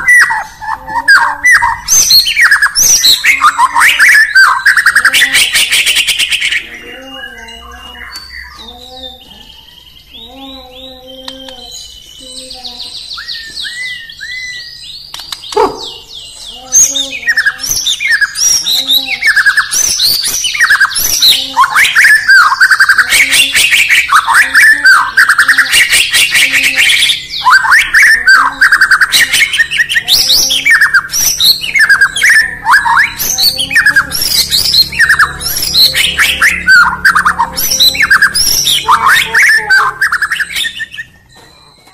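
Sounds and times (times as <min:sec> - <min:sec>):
bird singing whistled notes: 0:01.5 - 0:41.9.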